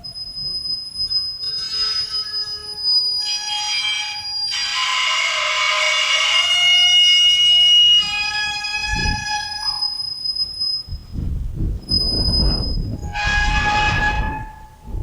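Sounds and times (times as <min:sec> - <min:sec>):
windmill screeching and creaking: 0:00.0 - 0:15.0
wind gusts on microphone: 0:08.0 - 0:09.6, 0:10.8 - 0:15.0.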